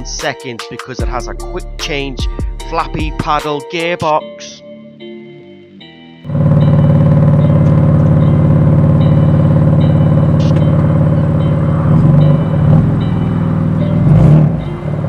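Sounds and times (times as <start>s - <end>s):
faint backing music: 0.0s - 6.1s
car engine at steady revs: 6.3s - 15.0s.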